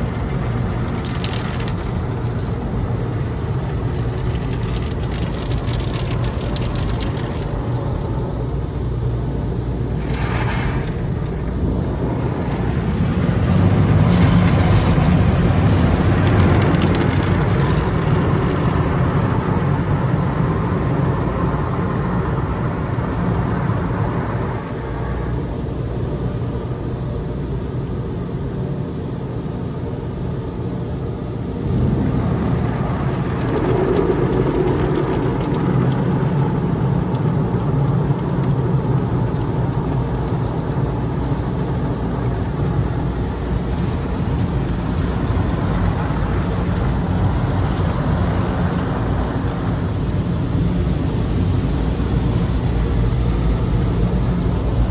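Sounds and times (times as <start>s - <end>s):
car wash machinery running: 0.0s - 54.9s
low hum: 0.0s - 54.9s
water spray: 49.5s - 54.9s.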